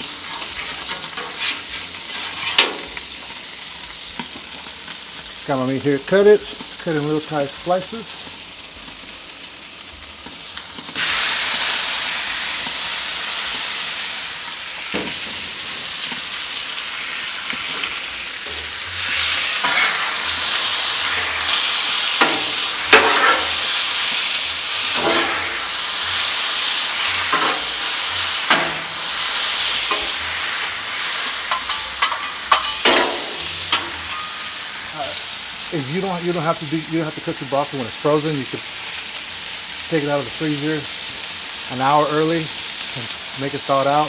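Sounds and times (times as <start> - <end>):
spatula scraping griddle: 0.0 - 3.4, 14.8 - 34.7
meat sizzling on a griddle: 0.0 - 44.0.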